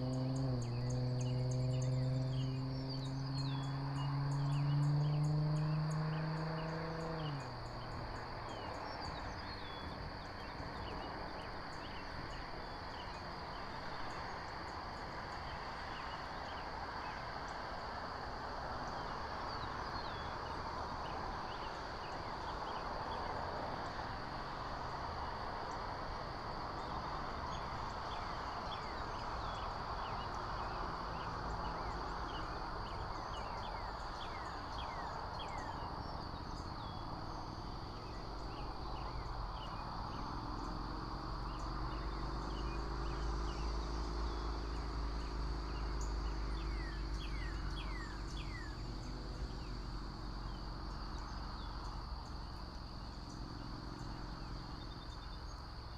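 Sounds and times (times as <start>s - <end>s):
small birds chirping: 26.8s - 55.9s.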